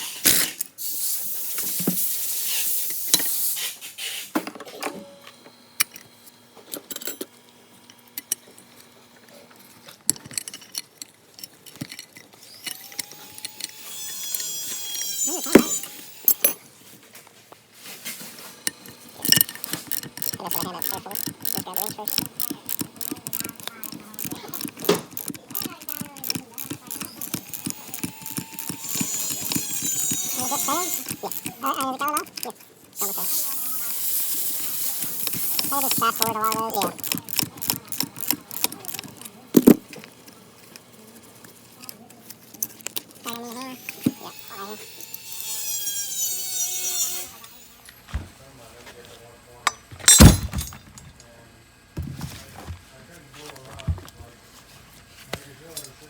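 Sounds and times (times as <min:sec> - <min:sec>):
ratchet wrench clicking: 0:12.6 - 0:16.6, 0:18.6 - 0:40.1.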